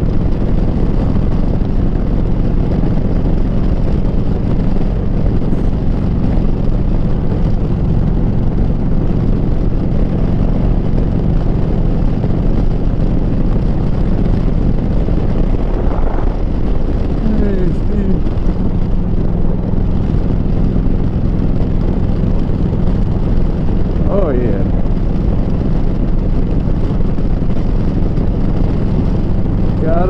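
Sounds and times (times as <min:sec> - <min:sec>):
motorcycle exhaust cruising: 0:00.0 - 0:30.0.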